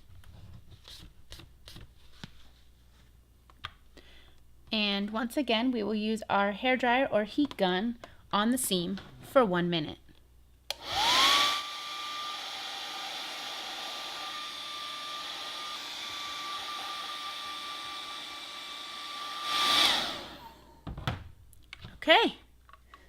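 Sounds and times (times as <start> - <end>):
hot-air blower motor whine: 10.7 - 21.0.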